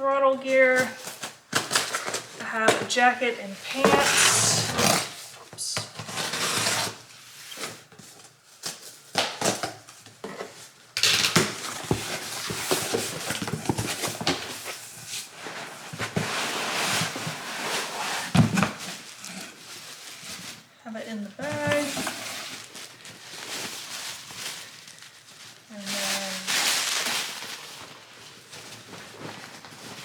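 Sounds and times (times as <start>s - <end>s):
plastic bag crinkling: 21.4s - 30.0s.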